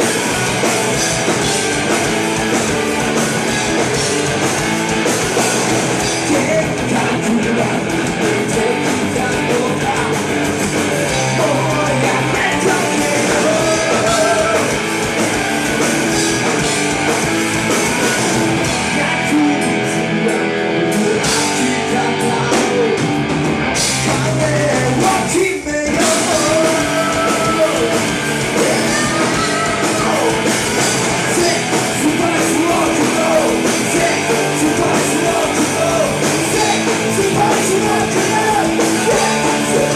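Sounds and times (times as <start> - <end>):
drums: 0.0 - 39.9
electric guitars: 0.0 - 39.9
person singing: 5.4 - 14.8, 17.8 - 23.2, 24.0 - 39.9.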